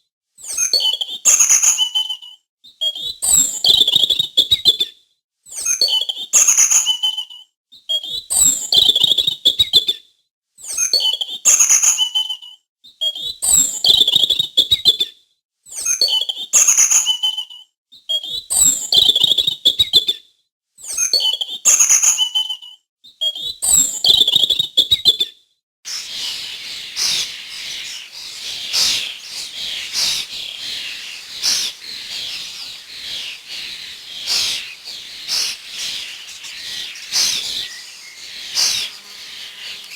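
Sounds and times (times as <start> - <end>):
many birds twittering: 25.9 - 39.9
songbird call: 25.9 - 39.9.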